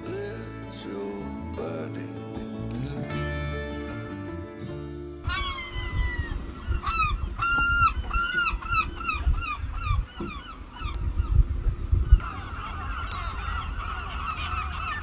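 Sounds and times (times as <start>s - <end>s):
music: 0.0s - 7.0s
waterfowl honking: 5.2s - 15.0s.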